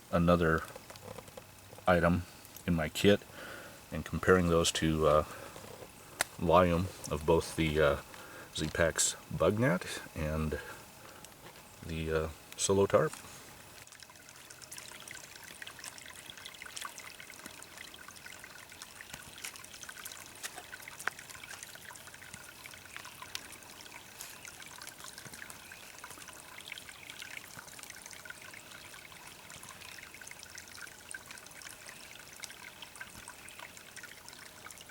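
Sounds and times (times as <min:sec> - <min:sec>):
water trickling: 0:00.0 - 0:34.9
small ticks: 0:00.6 - 0:02.7, 0:12.5 - 0:34.8.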